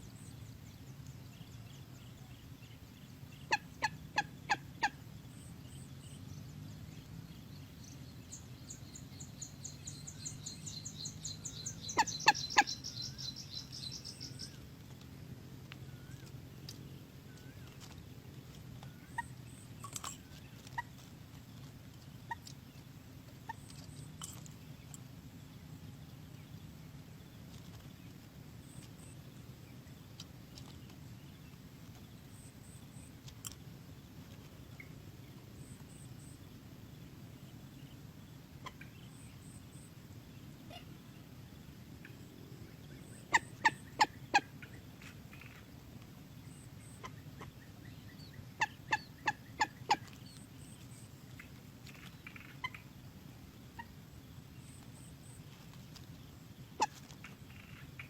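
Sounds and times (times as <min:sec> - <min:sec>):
low steady background: 0:00.0 - 0:58.0
moorhen calling sharply: 0:03.3 - 0:05.1, 0:10.0 - 0:14.7, 0:42.9 - 0:45.7, 0:46.6 - 0:52.9, 0:56.6 - 0:58.0.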